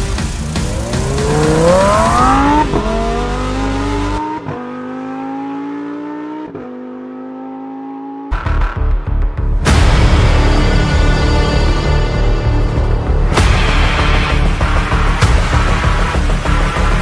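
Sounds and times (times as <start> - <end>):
music: 0.0 - 4.4, 8.3 - 17.0
sports car engine accelerating: 0.1 - 8.8.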